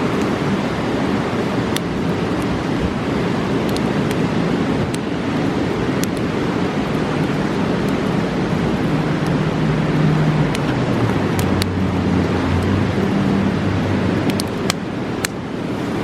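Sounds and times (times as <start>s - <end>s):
campfire crackling and popping: 0.0s - 16.0s
fast river rushing: 0.0s - 16.0s
low drone shifting in pitch: 8.4s - 14.3s.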